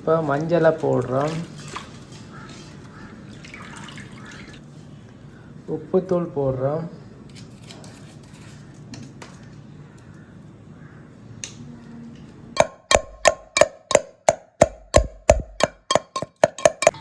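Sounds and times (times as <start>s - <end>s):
sharp metallic knocks: 12.6s - 17.0s.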